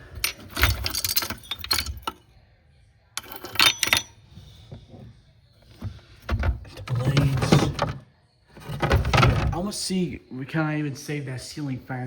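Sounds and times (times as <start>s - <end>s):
hard objects clinking and rattling: 0.0s - 2.2s, 3.2s - 4.2s, 8.6s - 9.6s.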